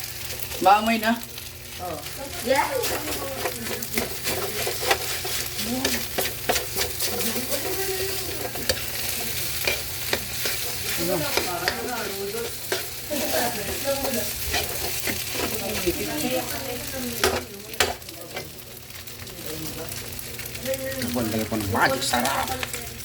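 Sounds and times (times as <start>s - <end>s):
rice sizzling in a hot pan: 0.0s - 23.0s
spatula scraping and clacking on pan: 2.4s - 19.0s.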